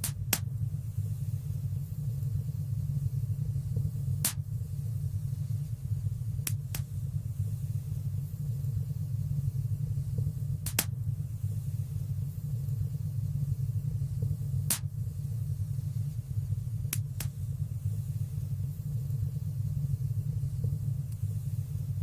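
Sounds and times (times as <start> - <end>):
wood fire rumbling and popping: 3.6 - 4.6, 10.1 - 11.1, 14.1 - 15.0.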